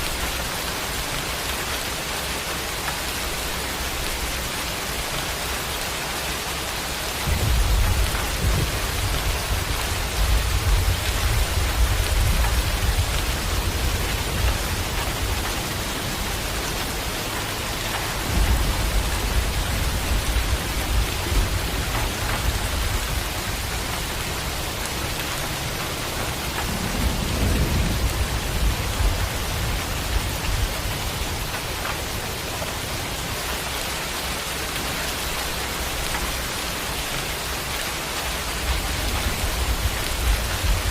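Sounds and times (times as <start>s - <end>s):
steady rain: 0.0s - 40.9s
rolling thunder: 7.2s - 33.4s.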